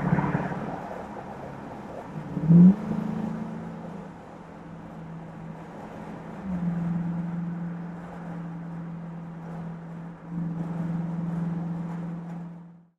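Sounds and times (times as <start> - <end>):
car engine droning hum: 0.0 - 12.9.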